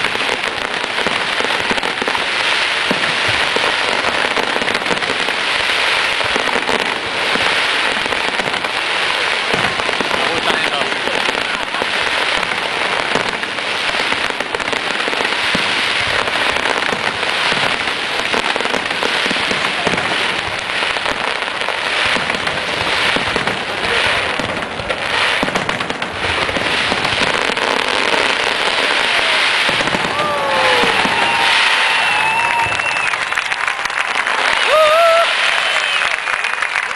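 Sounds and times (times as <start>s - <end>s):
fireworks barrage crackling: 0.0s - 36.9s.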